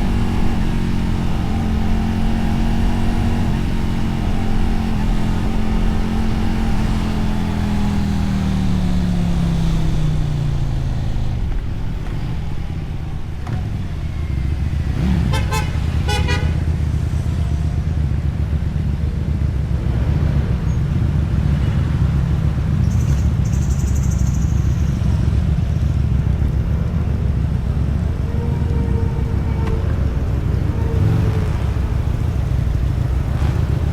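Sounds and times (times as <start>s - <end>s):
motorcycle engine rumble: 0.0s - 33.9s
road noise: 0.0s - 33.9s
horn toots: 14.8s - 16.8s, 28.0s - 33.9s.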